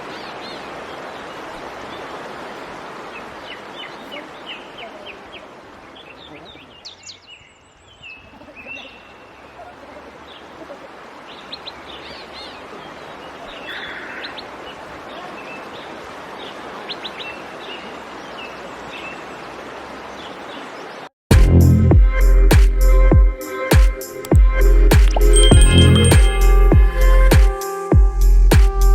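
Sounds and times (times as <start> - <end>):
birds chirping: 0.0 - 21.1, 25.0 - 27.1
steady outdoor hiss: 0.0 - 21.1, 22.2 - 28.9.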